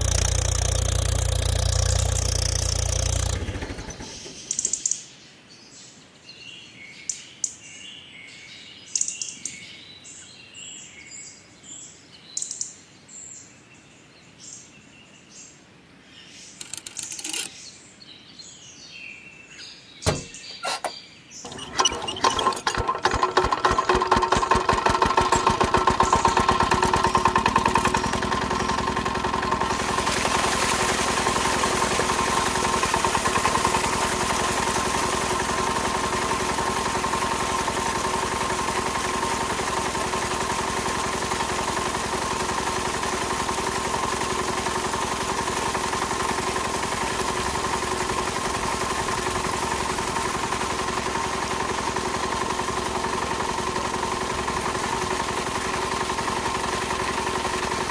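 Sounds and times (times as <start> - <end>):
small motor humming and whining: 0.0 - 4.2.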